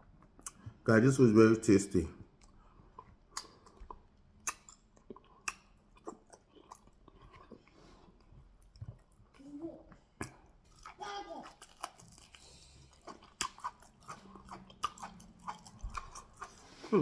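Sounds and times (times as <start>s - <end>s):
wet chewing: 2.3s - 17.0s
wet mouth smacks: 4.4s - 4.8s, 5.4s - 6.2s.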